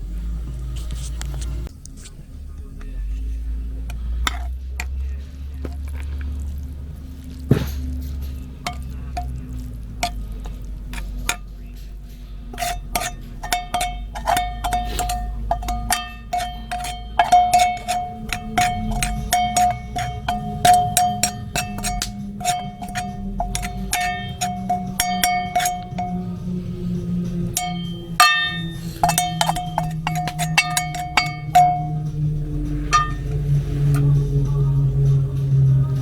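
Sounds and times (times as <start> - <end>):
metal utensil clinking on cookware: 3.9 - 11.9, 12.5 - 26.4, 27.5 - 32.0, 32.8 - 34.1
steady ringing tone: 12.6 - 33.7.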